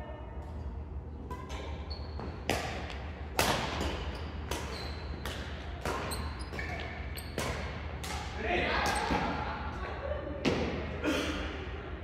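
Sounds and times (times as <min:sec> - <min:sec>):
rackets striking shuttlecock: 0:00.4 - 0:09.3.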